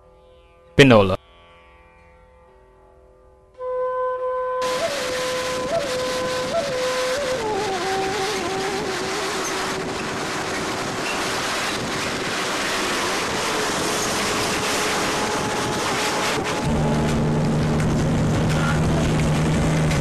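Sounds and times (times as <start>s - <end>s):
steady rushing noise: 4.6s - 20.0s.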